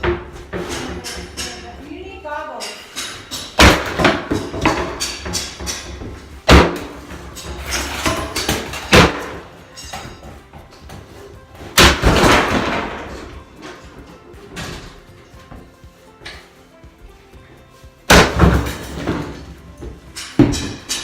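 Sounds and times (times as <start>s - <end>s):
sledgehammer smashing blows: 3.4s - 9.9s, 11.7s - 13.3s, 18.1s - 19.4s
falling debris clattering: 3.4s - 10.3s, 11.7s - 14.9s, 18.1s - 21.0s.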